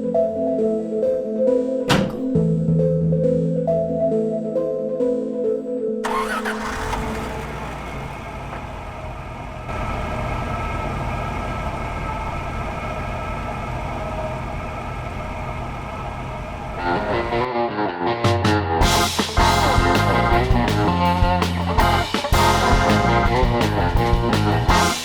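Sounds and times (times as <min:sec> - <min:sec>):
music: 0:00.0 - 0:06.8, 0:16.8 - 0:25.0.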